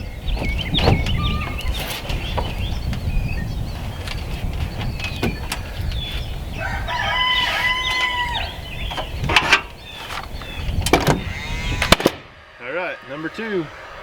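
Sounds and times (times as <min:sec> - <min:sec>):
rooster crowing: 0:06.5 - 0:08.7.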